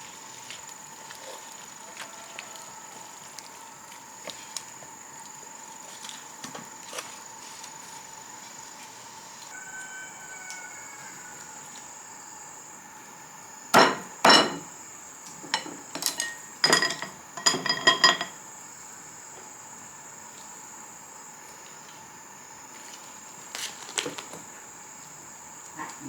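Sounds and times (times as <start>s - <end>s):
metallic knocks and clanks: 13.8s - 14.7s.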